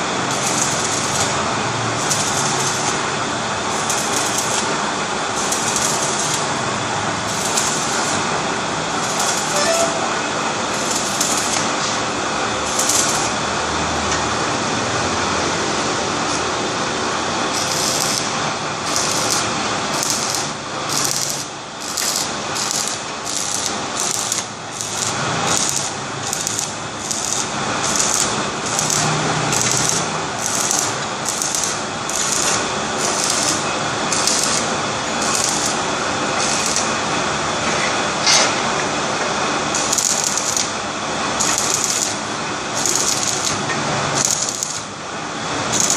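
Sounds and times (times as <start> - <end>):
brick cutting machine running: 0.0 - 45.9.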